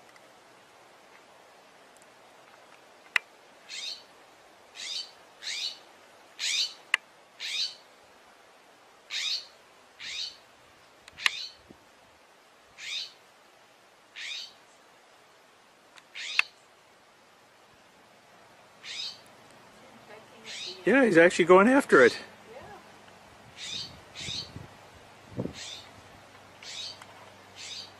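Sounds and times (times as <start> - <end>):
bird harsh call: 3.7 - 4.0, 4.8 - 5.8, 6.4 - 6.8, 7.4 - 7.8, 9.1 - 10.4, 11.2 - 11.6, 12.8 - 13.2, 14.2 - 14.6, 16.1 - 16.6, 18.8 - 19.2, 20.4 - 20.8, 23.6 - 24.5, 25.6 - 25.9, 26.6 - 27.0, 27.6 - 27.9.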